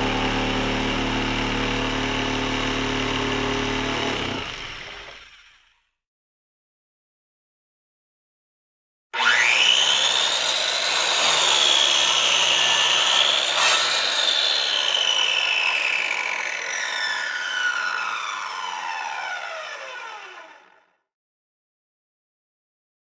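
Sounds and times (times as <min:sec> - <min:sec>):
electric saw motor whine: 0:00.0 - 0:05.6, 0:09.2 - 0:20.9.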